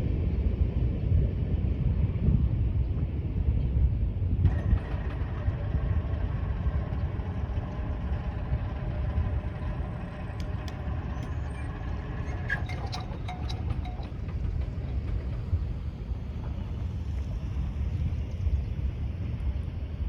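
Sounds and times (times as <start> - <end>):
freight train rumbling on rails: 0.0 - 20.0
faint squealing tones: 4.5 - 15.6.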